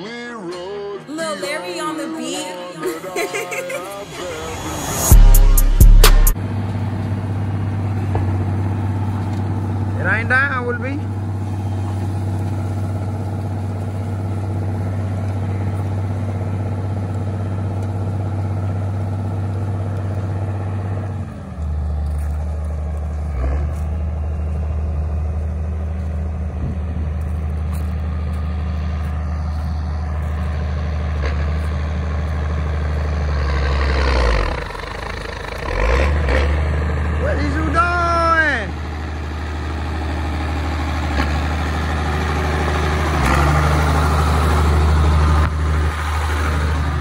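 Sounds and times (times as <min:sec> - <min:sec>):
vehicle engine running: 0:03.6 - 0:47.0
hissing noise: 0:03.7 - 0:06.4.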